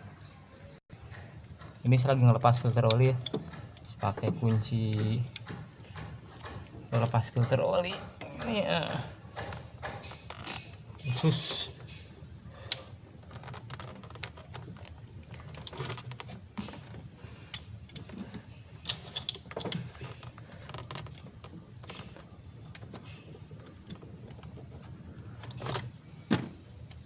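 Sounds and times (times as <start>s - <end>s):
metal wrench clicks and knocks: 1.6s - 10.8s.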